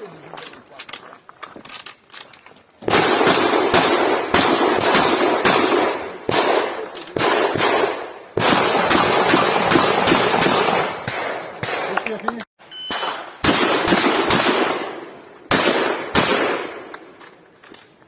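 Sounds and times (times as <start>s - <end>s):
shotgun shots with echo: 2.9s - 12.1s, 12.9s - 17.2s.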